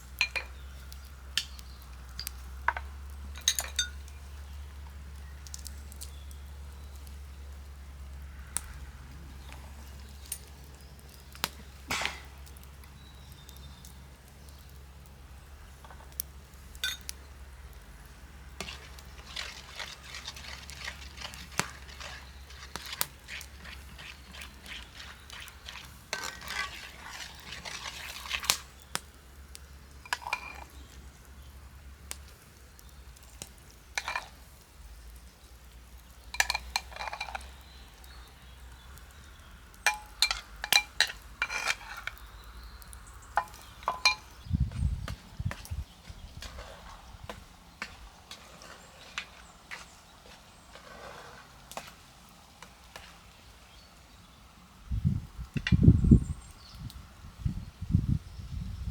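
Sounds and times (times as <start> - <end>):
frying sizzle: 0.0 - 54.2
utensils clinking and scraping: 2.2 - 4.1, 16.8 - 17.2, 18.6 - 28.8, 30.0 - 30.9, 34.0 - 34.4, 36.3 - 37.6, 39.8 - 42.4, 43.4 - 44.4, 46.4 - 49.9.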